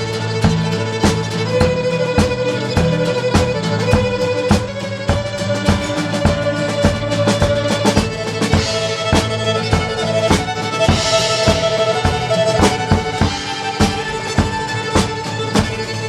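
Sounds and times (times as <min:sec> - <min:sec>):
band playing instrumental music: 0:00.0 - 0:16.0.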